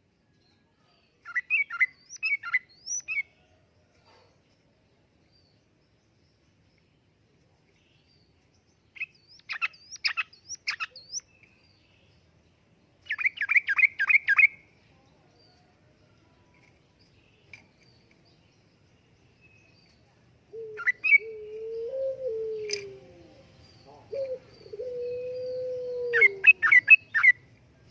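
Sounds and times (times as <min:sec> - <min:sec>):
bulbul singing: 0:00.4 - 0:03.3, 0:07.8 - 0:15.6, 0:16.6 - 0:27.9
low steady hooting call: 0:20.5 - 0:27.4.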